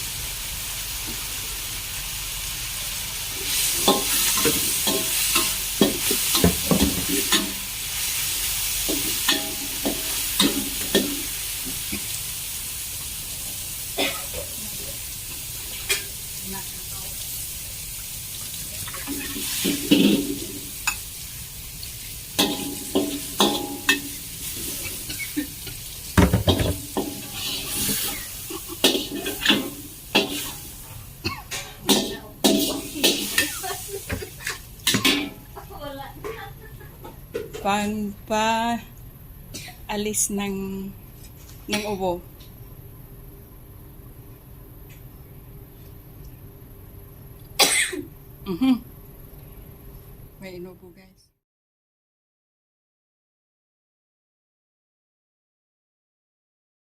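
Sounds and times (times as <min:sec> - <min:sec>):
food sizzling in a pan: 0:00.0 - 0:36.1
spatula scraping a pan: 0:26.5 - 0:30.6.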